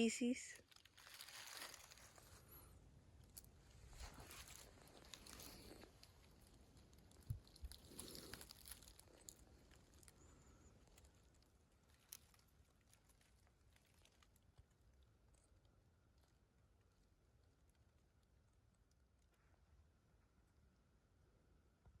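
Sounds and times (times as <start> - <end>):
faint rustling and crunching: 0.5 - 20.8.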